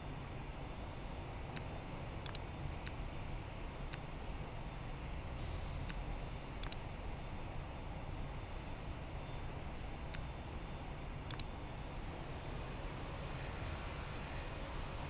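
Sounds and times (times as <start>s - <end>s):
faint clicks: 1.5s - 3.0s, 5.8s - 6.9s, 11.2s - 11.6s.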